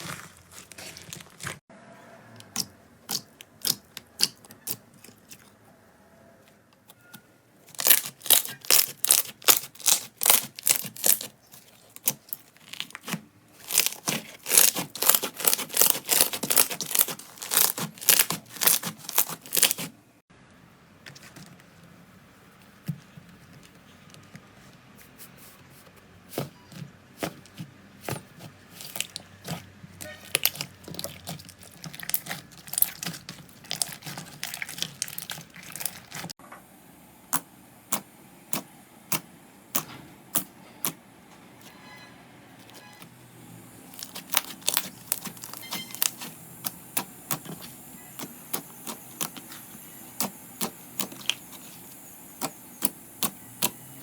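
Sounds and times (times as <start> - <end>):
slime clicking and crackling: 2.4 - 5.5, 7.7 - 19.9, 27.2 - 36.4, 43.9 - 53.8.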